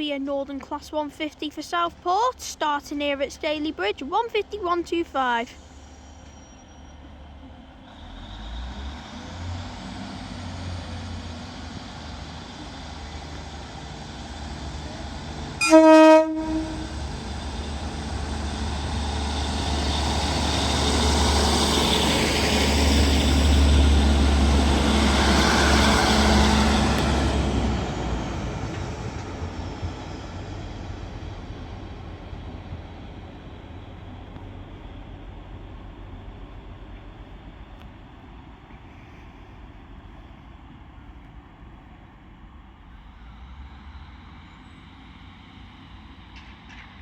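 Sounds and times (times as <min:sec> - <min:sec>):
train diesel engines: 0:00.0 - 0:47.0
train horn blast: 0:15.6 - 0:17.1.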